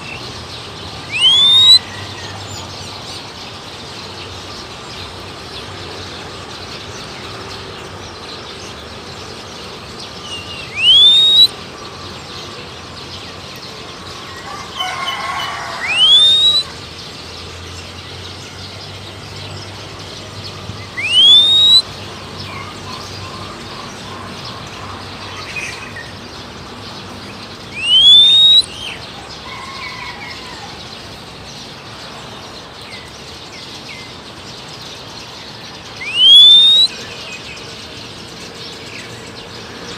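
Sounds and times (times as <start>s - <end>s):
person whistling rising note: 1.1s - 1.8s, 10.8s - 11.5s, 15.8s - 16.6s, 21.0s - 21.8s, 27.8s - 28.6s, 36.0s - 36.9s
faint bird calls: 1.1s - 2.3s, 10.6s - 11.5s, 14.8s - 16.8s, 20.9s - 21.8s, 27.7s - 28.7s, 36.0s - 37.1s.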